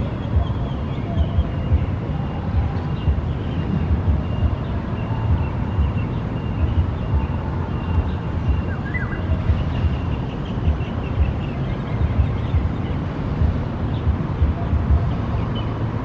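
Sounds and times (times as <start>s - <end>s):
low rumbling background noise: 0.0s - 16.0s
faint whistled bird calls: 0.2s - 12.6s.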